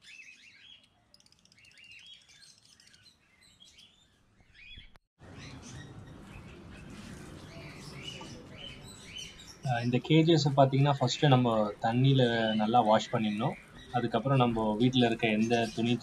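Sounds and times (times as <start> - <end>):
steady background noise: 5.2 - 16.0.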